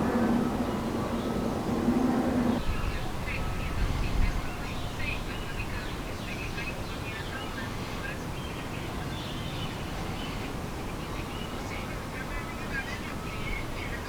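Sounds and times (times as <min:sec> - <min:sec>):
birds chirping: 0:00.0 - 0:02.6
steady low rumble: 0:00.0 - 0:02.6.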